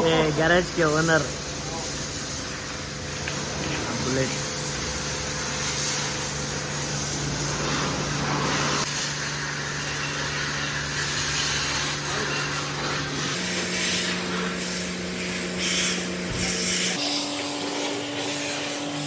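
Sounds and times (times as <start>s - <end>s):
pressure washer motor hum: 0.0s - 19.0s
water spray hiss: 5.4s - 19.0s.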